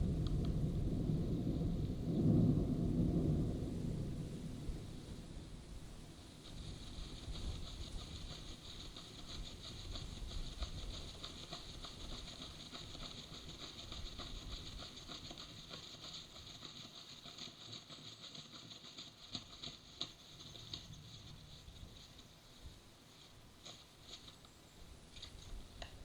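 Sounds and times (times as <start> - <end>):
rain pattering: 0.0 - 5.6
low wind rumble: 0.0 - 8.3.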